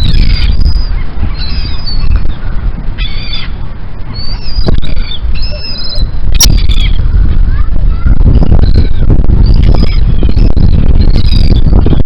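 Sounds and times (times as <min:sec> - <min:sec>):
seagulls squawking: 0:00.0 - 0:07.7, 0:08.5 - 0:11.8
steady low rumble: 0:00.0 - 0:12.0.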